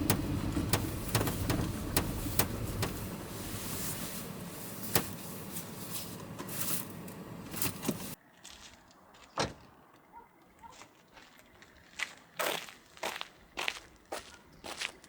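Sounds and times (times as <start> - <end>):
car door knocks and clunk: 0.0 - 8.2
rushing vehicle noise: 0.0 - 8.2.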